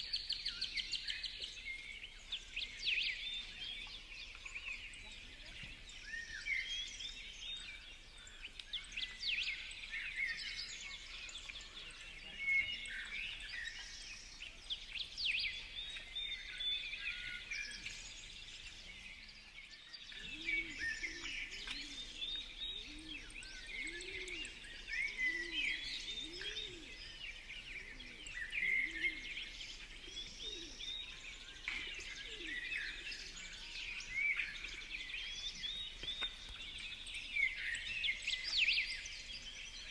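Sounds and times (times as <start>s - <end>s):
small birds chirping: 0.0s - 39.9s
pigeons cooing: 20.3s - 31.0s, 31.6s - 33.4s.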